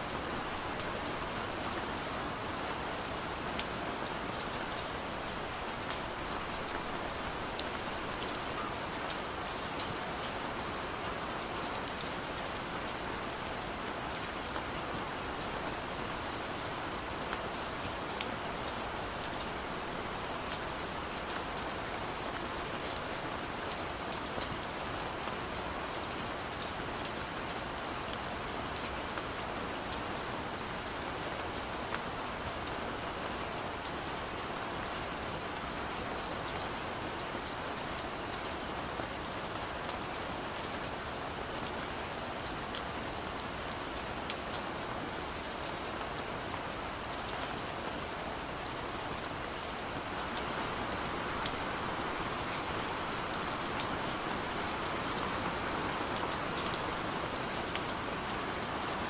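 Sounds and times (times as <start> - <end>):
gentle rain falling: 0.0 - 59.0.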